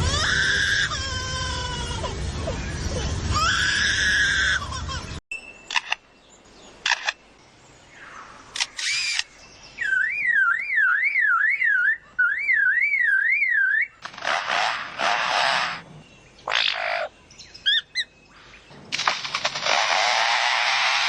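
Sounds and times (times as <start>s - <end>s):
lyrebird shutter-like clicks: 5.7s - 6.0s, 6.8s - 7.2s, 8.5s - 9.3s, 14.0s - 15.8s, 18.9s - 21.0s
lyrebird alarm-like whistle: 9.8s - 14.0s.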